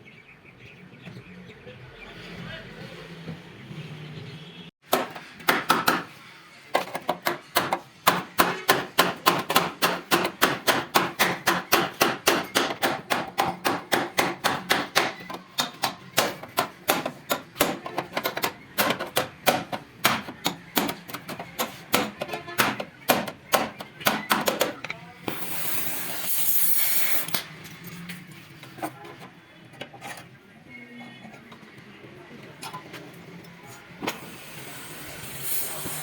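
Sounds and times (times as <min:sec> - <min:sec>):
hammer striking metal: 0:07.0 - 0:24.8.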